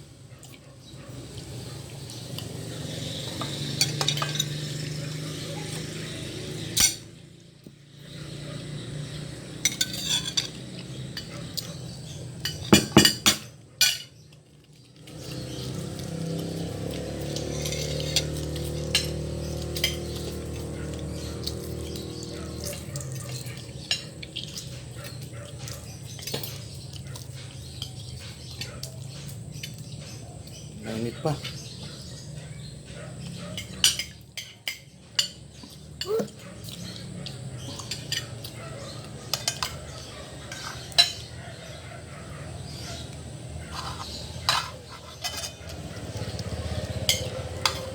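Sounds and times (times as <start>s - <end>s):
cutlery clinking on a plate: 3.4s - 4.9s, 6.7s - 7.1s, 9.7s - 11.7s, 12.4s - 14.2s, 16.9s - 20.7s, 33.6s - 36.3s, 37.7s - 38.6s, 39.3s - 41.4s, 43.7s - 45.9s.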